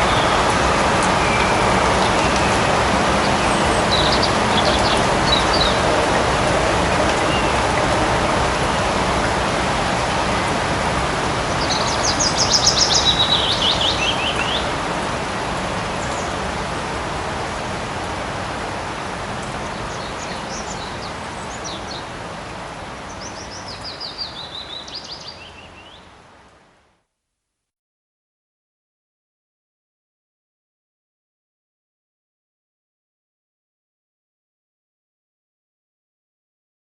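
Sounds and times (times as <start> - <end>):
light rain in a forest: 0.0 - 27.7.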